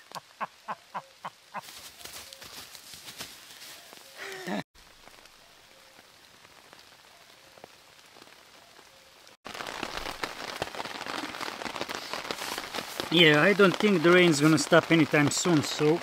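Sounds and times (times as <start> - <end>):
rain falling on a tarp: 0.0 - 16.0.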